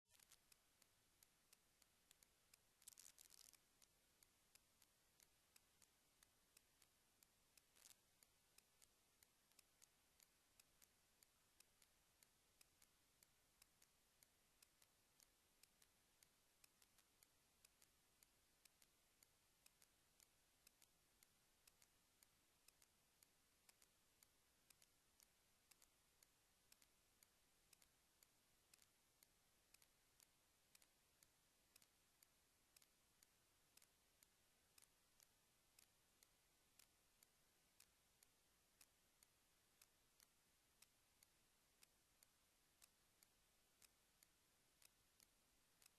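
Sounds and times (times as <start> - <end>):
faint short clicks: 0.1 - 6.9
faint hiss: 0.1 - 45.9.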